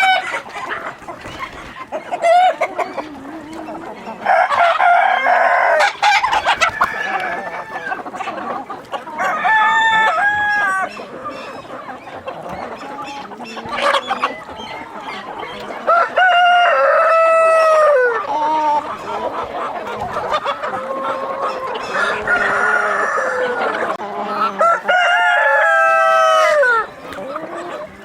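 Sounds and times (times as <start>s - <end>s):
chickens clucking: 0.0s - 28.0s
rooster crowing: 4.3s - 8.0s, 21.8s - 23.9s.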